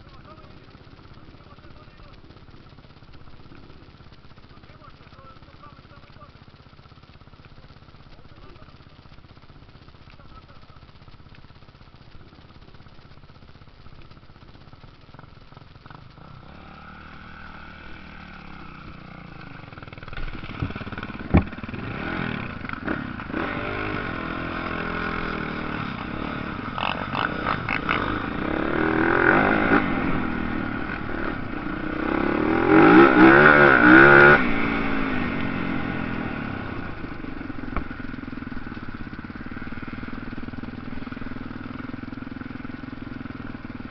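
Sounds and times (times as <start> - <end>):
motorcycle engines revving past: 15.8 - 43.9.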